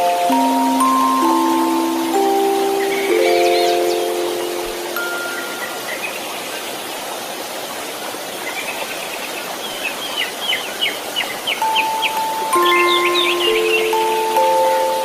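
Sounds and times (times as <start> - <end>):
chime note: 0.0 - 5.9, 11.6 - 15.0
steady white noise: 0.0 - 15.0.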